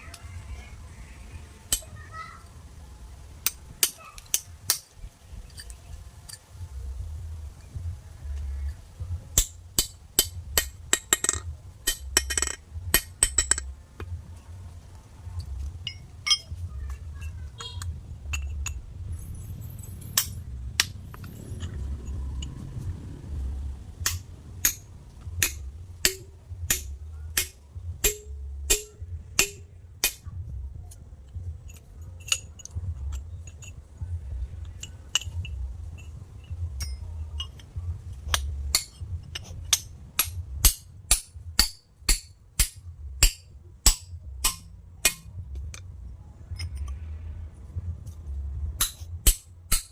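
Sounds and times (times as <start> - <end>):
constant low rumble: 0.0 - 49.9
tools striking stone: 3.4 - 4.9, 9.4 - 13.7, 15.9 - 16.5, 25.4 - 30.2, 36.8 - 37.6, 38.3 - 45.3, 48.8 - 49.9.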